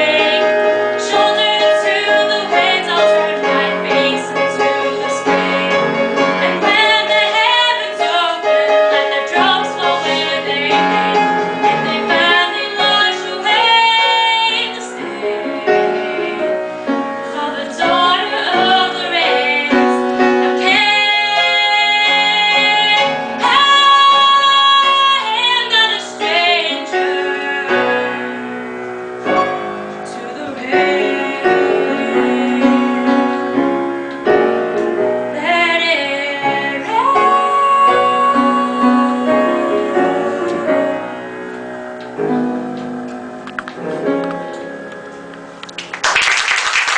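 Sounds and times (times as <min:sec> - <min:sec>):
woman singing: 0:00.0 - 0:16.6, 0:17.3 - 0:28.3, 0:30.1 - 0:33.7, 0:35.3 - 0:41.1
piano accompaniment: 0:00.0 - 0:46.9.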